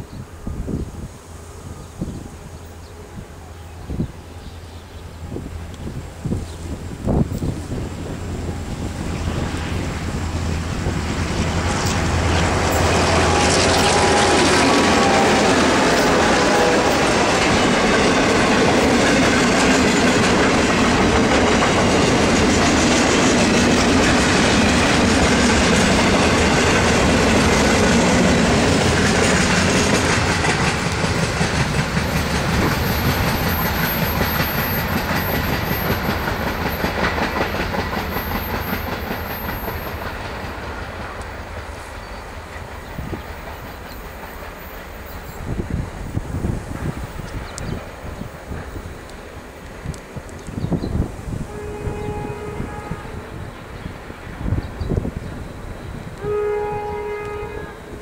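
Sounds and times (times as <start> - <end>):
train wheels clacking over rail joints: 10.8 - 50.7.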